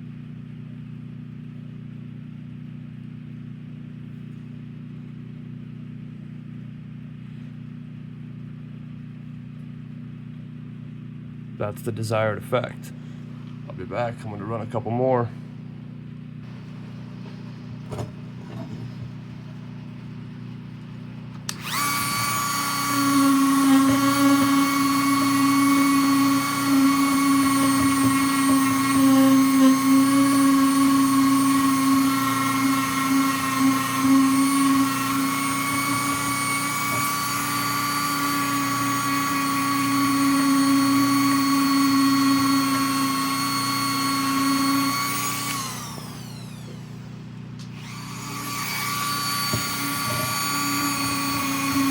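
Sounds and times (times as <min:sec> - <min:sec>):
electric power tool whining: 0:16.4 - 0:51.9.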